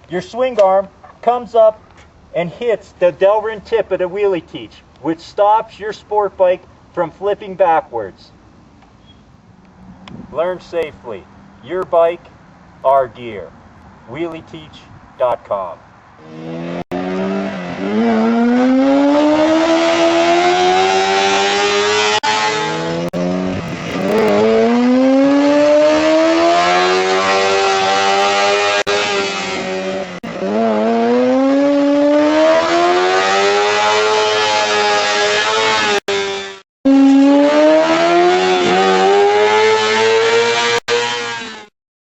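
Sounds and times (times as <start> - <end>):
motorcycle engine accelerating hard: 16.2 - 41.4.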